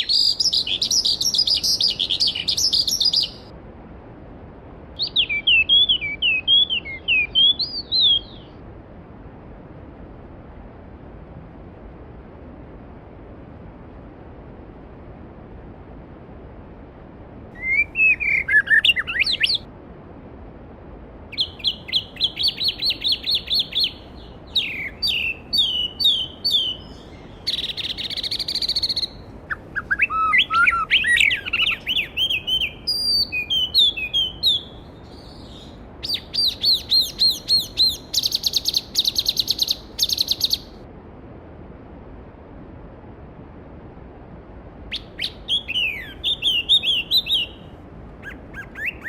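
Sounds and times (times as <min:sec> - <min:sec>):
songbird singing: 0:00.0 - 0:03.5, 0:05.0 - 0:08.6, 0:17.6 - 0:19.7, 0:21.3 - 0:40.8, 0:44.9 - 0:49.0.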